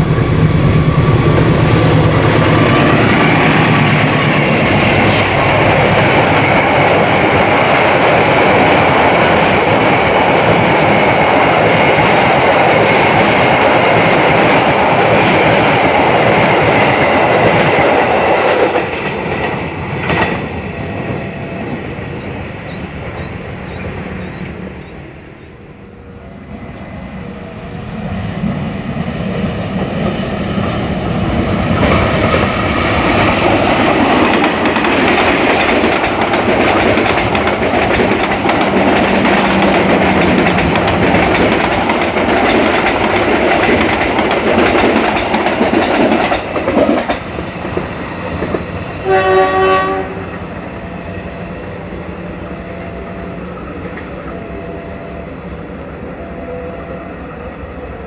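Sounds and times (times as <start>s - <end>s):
passenger train passing: 0.0s - 58.0s
train horn: 49.0s - 51.2s.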